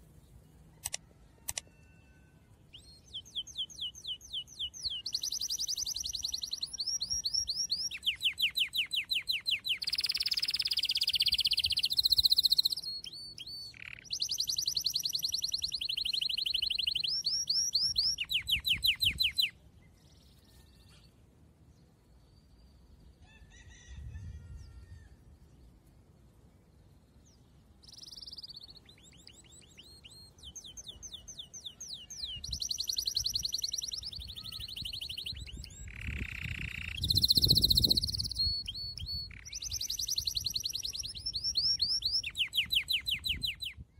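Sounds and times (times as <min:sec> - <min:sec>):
songbird trilling: 0:02.8 - 0:21.0, 0:27.8 - 0:43.9.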